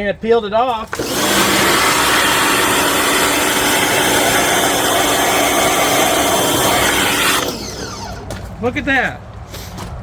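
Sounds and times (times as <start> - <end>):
pressure washer water jet hissing: 0.9 - 8.2.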